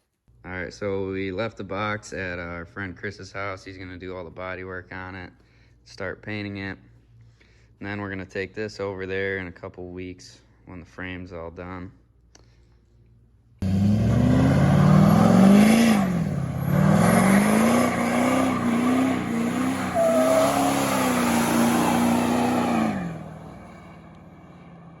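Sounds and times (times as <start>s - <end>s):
vehicle engine revving: 13.6s - 25.0s.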